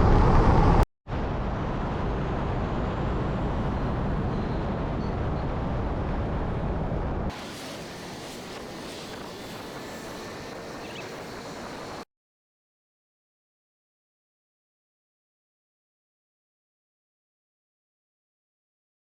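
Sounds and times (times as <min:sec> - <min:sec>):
wind and road noise: 0:00.0 - 0:12.1.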